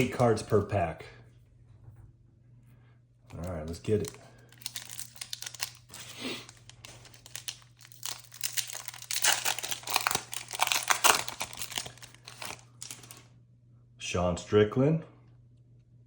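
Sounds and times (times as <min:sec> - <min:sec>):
foil wrapper torn and crinkled: 0:03.3 - 0:13.3.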